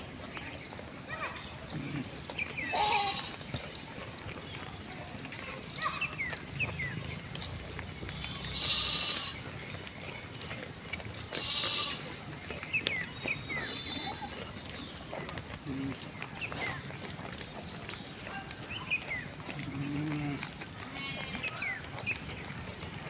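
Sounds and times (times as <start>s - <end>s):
sheep and lambs bleating: 1.7s - 3.7s, 8.2s - 9.6s, 11.2s - 12.4s, 19.5s - 21.8s.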